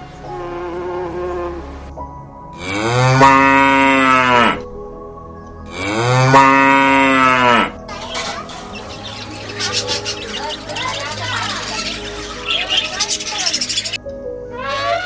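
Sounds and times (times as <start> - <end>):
animal calling: 5.7 - 15.0.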